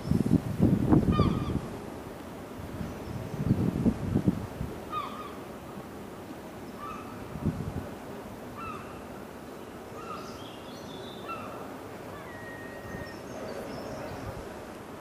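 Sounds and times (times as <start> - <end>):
bird arching call: 1.1 - 1.6, 4.9 - 5.4, 6.8 - 7.2, 8.6 - 9.0, 10.0 - 13.3.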